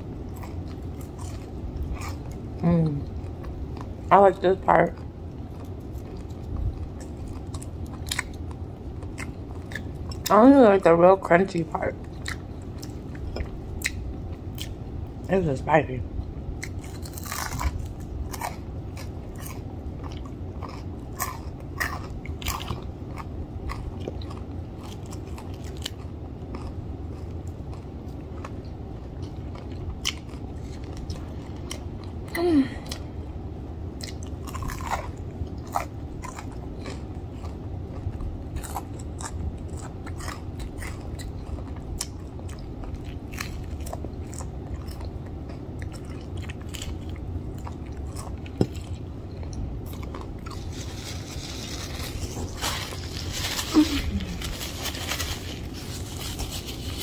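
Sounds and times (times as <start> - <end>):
crunching crispy fried chicken: 16.6 - 32.2, 34.0 - 57.0.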